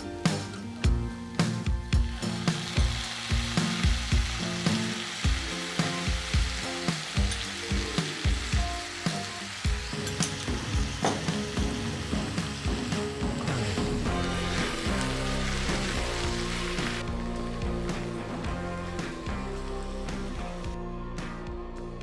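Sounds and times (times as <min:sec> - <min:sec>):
background music with a beat: 0:00.0 - 0:22.0
food sizzling in a pan: 0:00.1 - 0:20.8.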